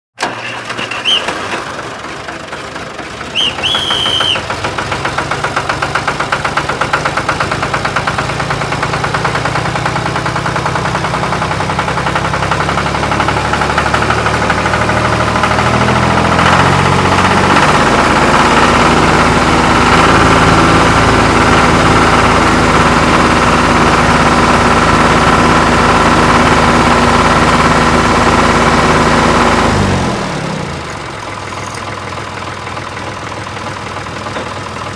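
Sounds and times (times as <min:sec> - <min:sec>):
tractor engine chugging: 0:00.2 - 0:34.9
short high chirps: 0:00.9 - 0:01.3, 0:03.3 - 0:04.4.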